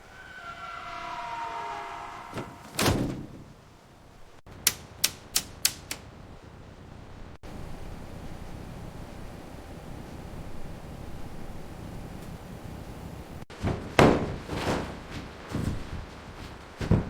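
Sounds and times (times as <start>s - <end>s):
sharp clicks: 4.5s - 6.1s.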